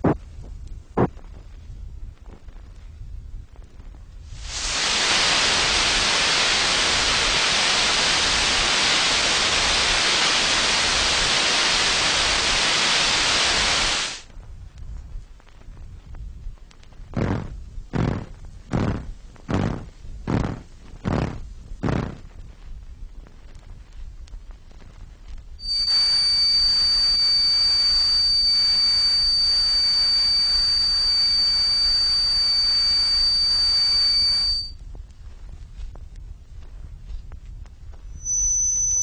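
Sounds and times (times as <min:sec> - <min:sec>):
rhythmic noise pulses: 0:00.0 - 0:00.2, 0:25.6 - 0:34.7
hiss: 0:04.2 - 0:14.3, 0:25.6 - 0:34.6
high-pitched whistle tone: 0:25.6 - 0:34.8, 0:38.1 - 0:39.0.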